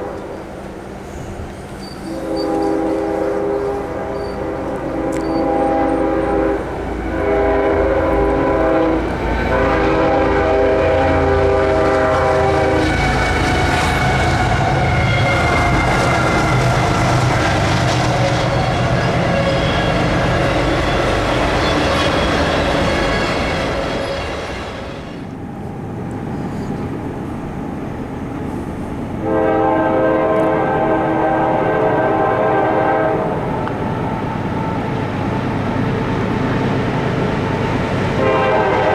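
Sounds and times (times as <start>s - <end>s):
locomotive air horn blasts: 0.0s - 0.5s, 2.0s - 24.5s, 29.2s - 33.5s, 38.1s - 38.9s
locomotive and train rumble: 0.0s - 38.9s.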